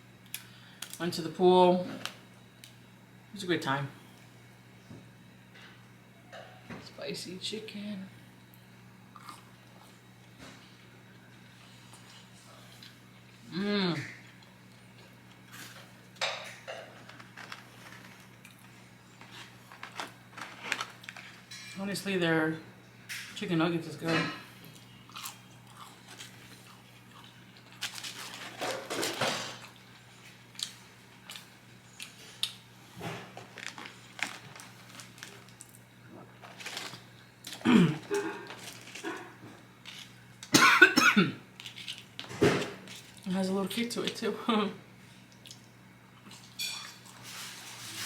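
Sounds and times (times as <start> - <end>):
low steady hum: 0.0 - 48.0
person chewing food: 24.6 - 28.1.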